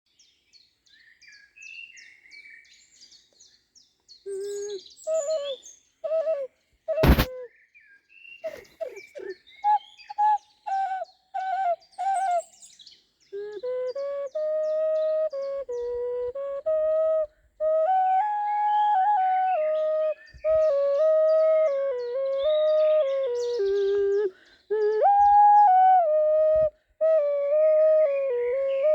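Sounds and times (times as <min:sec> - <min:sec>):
bird chirps: 0:00.2 - 0:16.0, 0:19.4 - 0:25.0
sharp click: 0:07.0 - 0:07.3.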